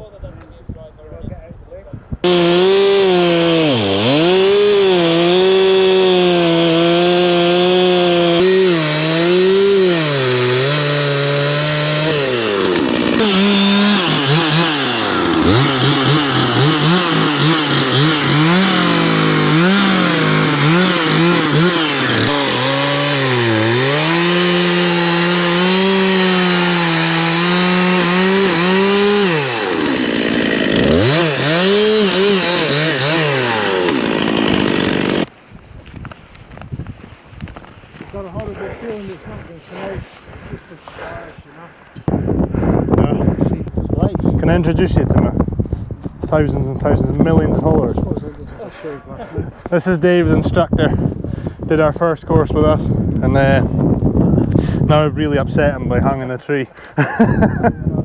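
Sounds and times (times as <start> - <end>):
chainsaw cutting into tree: 2.2 - 35.3.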